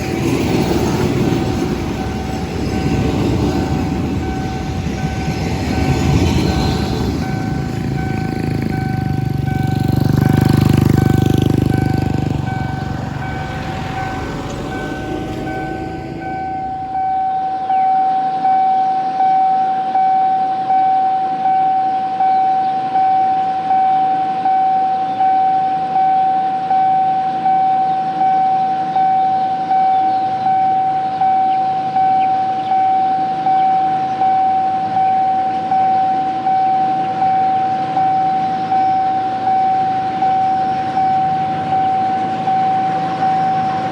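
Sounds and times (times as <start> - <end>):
diesel train rumble: 0.0 - 17.6
electronic crossing warning bell: 0.0 - 43.9.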